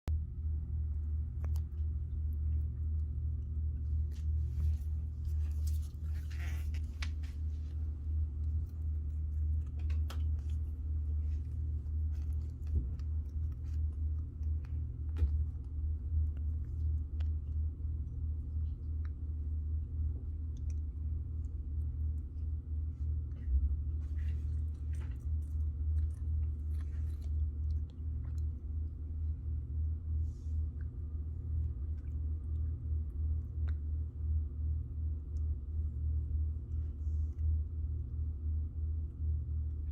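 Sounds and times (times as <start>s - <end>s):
low hum: 0.0s - 39.9s
hamster chewing: 0.9s - 22.6s, 23.4s - 29.1s.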